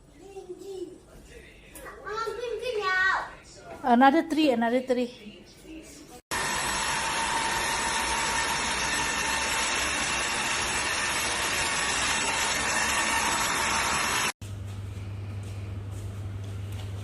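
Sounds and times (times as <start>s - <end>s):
vacuum mop motor whine: 6.3s - 14.4s.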